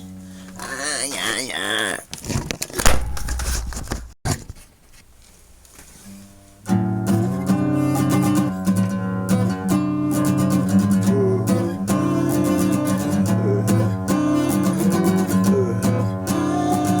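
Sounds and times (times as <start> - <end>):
faint handling noise: 2.1 - 6.7
guitar strumming chords: 6.7 - 17.0.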